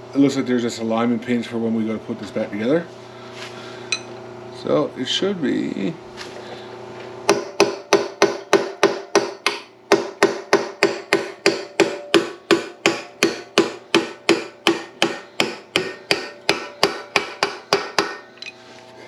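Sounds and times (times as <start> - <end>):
hammer striking steel: 7.3 - 18.3.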